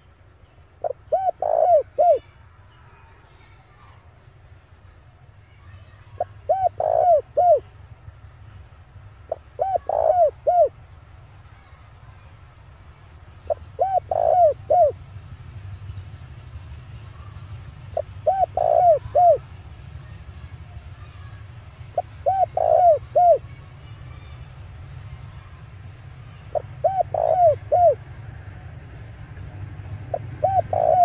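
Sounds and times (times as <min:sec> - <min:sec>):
dove cooing: 0:00.8 - 0:02.3, 0:06.2 - 0:07.7, 0:09.3 - 0:10.8, 0:13.5 - 0:15.0, 0:17.9 - 0:19.4, 0:21.9 - 0:23.5, 0:26.5 - 0:28.0, 0:30.0 - 0:31.0.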